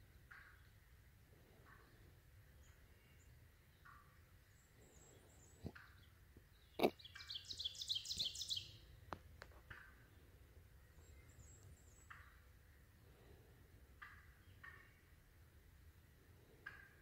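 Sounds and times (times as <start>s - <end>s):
faint short bird calls: 4.8s - 8.7s
bird chirping rapidly: 6.6s - 8.7s.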